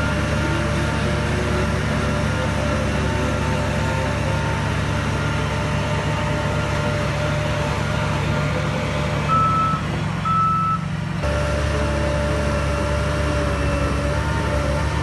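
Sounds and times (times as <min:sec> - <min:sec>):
heavy diesel machine running: 0:00.0 - 0:15.0
reversing alarm beeps: 0:09.3 - 0:10.8.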